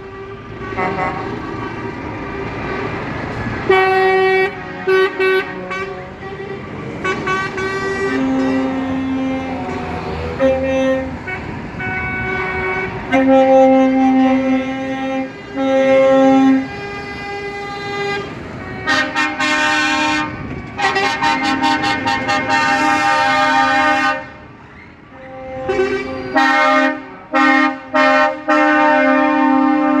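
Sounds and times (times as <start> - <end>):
truck air horns blasting: 0.0 - 30.0.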